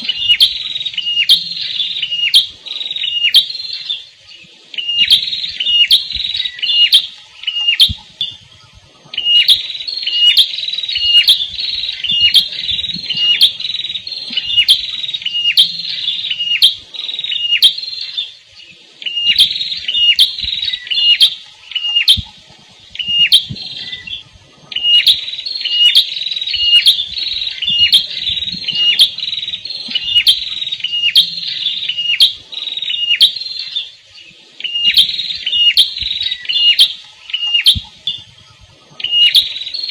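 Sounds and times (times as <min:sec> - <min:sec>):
bird chirping sharply: 0:09.2 - 0:18.3, 0:24.8 - 0:33.9.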